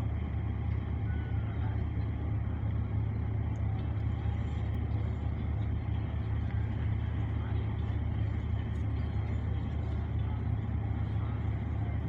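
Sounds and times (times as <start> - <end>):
ferry engine rumble: 0.0 - 12.0.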